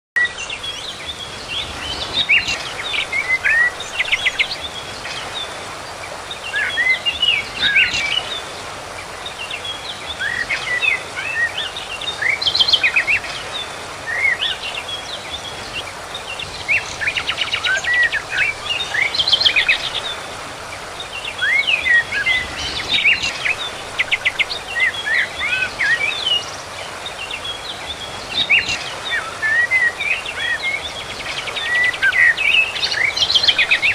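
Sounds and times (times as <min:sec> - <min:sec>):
birds singing and calling: 0:00.2 - 0:33.9
background hiss: 0:00.3 - 0:33.9.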